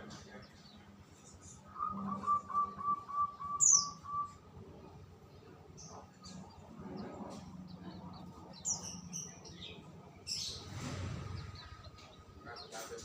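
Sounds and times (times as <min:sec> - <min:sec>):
songbirds chirping: 0:00.0 - 0:13.0
whistled bird notes: 0:01.7 - 0:04.4.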